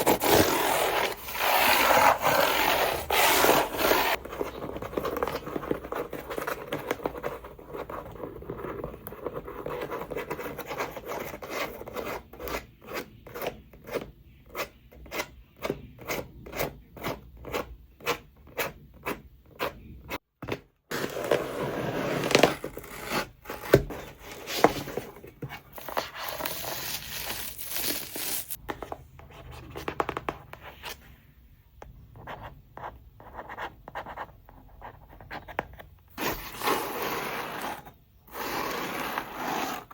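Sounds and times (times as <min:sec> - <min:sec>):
scratching and scraping on packaging: 0:00.0 - 0:15.3, 0:20.9 - 0:28.6, 0:36.2 - 0:39.9.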